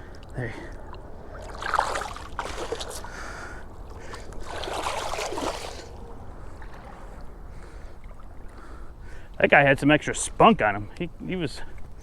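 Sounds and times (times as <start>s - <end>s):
water splashing: 0.0s - 9.3s
steady low rumble: 0.0s - 12.0s.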